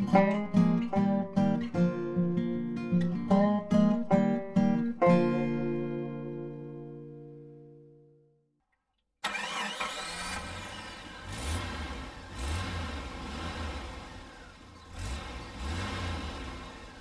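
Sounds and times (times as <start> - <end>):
vehicle engine revving: 9.2 - 17.0.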